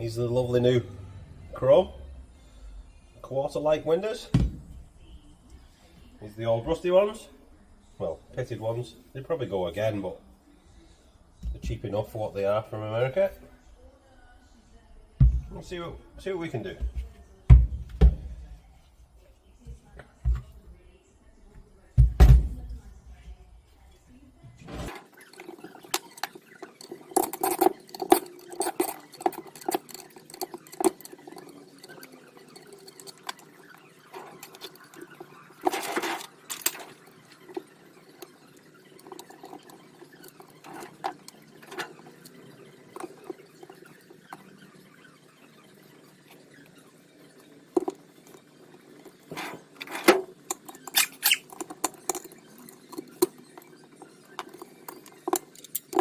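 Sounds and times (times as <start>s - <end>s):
metal parts and tools clinking: 24.9s - 56.0s.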